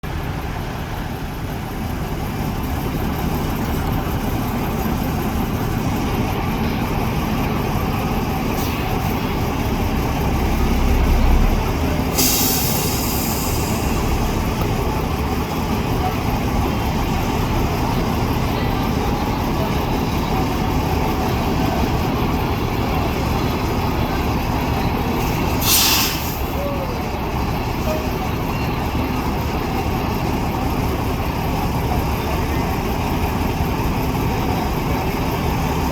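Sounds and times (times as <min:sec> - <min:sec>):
truck diesel engine under load: 0:00.0 - 0:35.9
air brake hiss: 0:12.1 - 0:14.2, 0:25.4 - 0:26.6.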